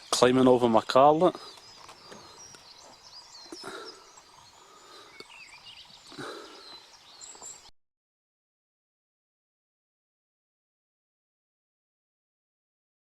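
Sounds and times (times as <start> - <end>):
small birds chirping: 0.0 - 7.7.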